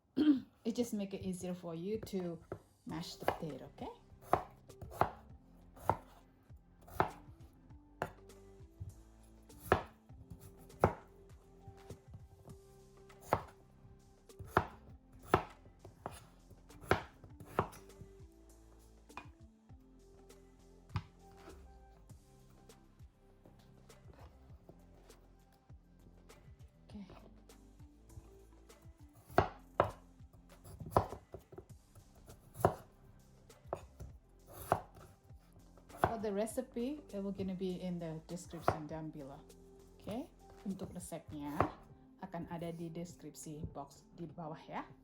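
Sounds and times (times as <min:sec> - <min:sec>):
knife chopping on cutting board: 0:02.5 - 0:03.6, 0:04.2 - 0:06.2, 0:06.9 - 0:07.3, 0:09.6 - 0:11.1, 0:13.2 - 0:13.6, 0:14.4 - 0:18.0, 0:29.2 - 0:30.0, 0:30.6 - 0:31.6, 0:32.2 - 0:32.9, 0:33.7 - 0:35.1, 0:35.9 - 0:36.2, 0:38.5 - 0:38.9, 0:41.5 - 0:41.8.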